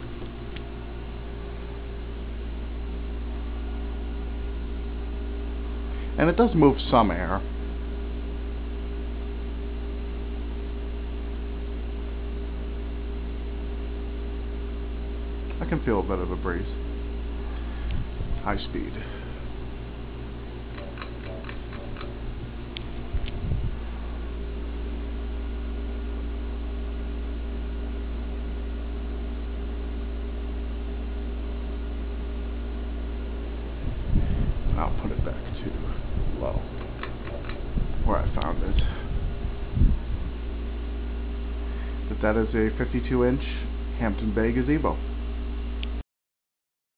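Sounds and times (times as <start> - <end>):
ceiling fan motor hum: 0.0 - 46.0
rush of moving air: 33.8 - 36.8.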